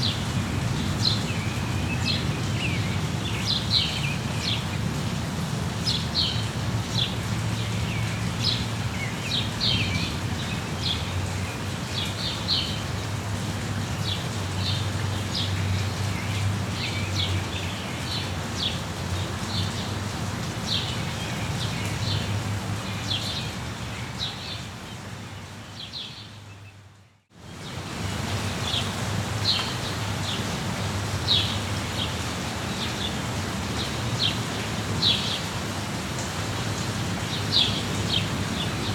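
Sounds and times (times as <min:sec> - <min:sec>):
steady rain: 0:00.0 - 0:38.9
small birds chirping: 0:20.7 - 0:30.5, 0:31.3 - 0:35.5, 0:36.8 - 0:38.9.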